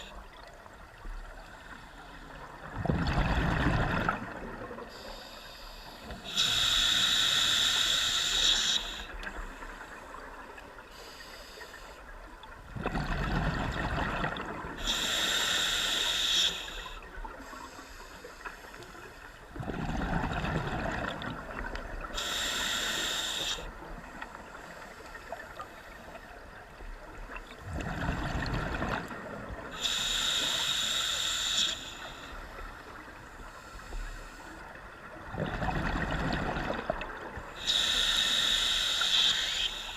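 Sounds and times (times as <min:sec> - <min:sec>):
diver inhaling through regulator: 0:04.9 - 0:09.5, 0:14.8 - 0:19.2, 0:22.1 - 0:23.8, 0:29.7 - 0:32.6, 0:37.6 - 0:39.9.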